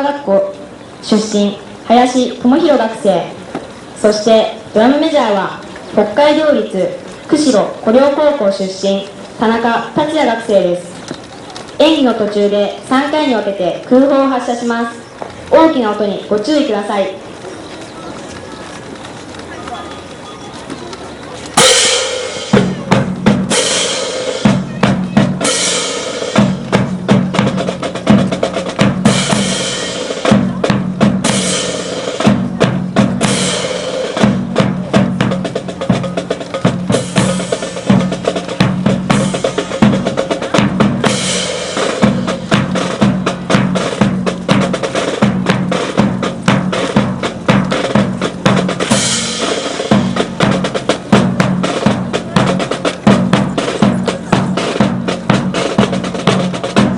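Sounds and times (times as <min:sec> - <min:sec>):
snare drums: 0:21.4 - 0:56.9
bass drums: 0:21.5 - 0:56.9.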